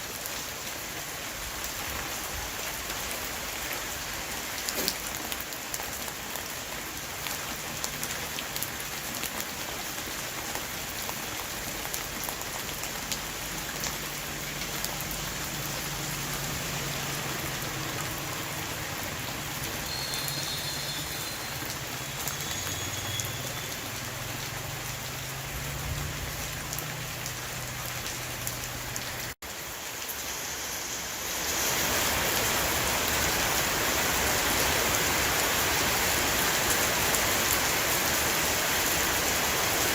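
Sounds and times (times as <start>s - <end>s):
rain on a roof: 0.0s - 39.9s
raindrops ticking: 17.2s - 29.4s.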